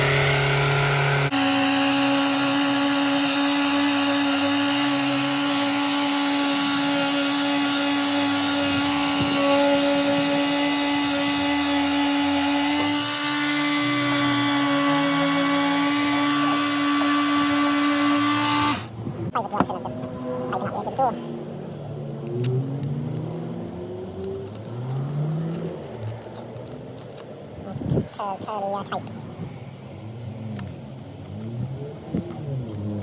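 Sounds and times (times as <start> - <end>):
electric sander running: 0.0 - 18.9.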